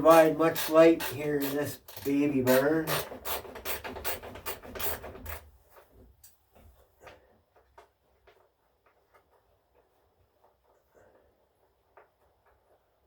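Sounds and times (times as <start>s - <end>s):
hand tool rasping strokes: 0.0s - 5.4s.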